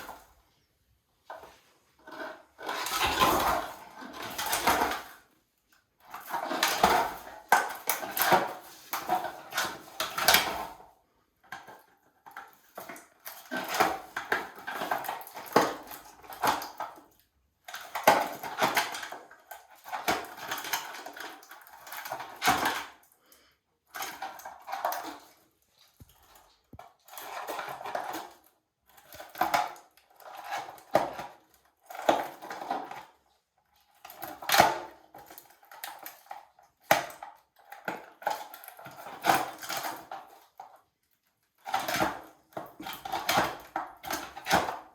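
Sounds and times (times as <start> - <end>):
parrot toy clattering and crunching: 23.9 - 33.2, 33.8 - 40.8.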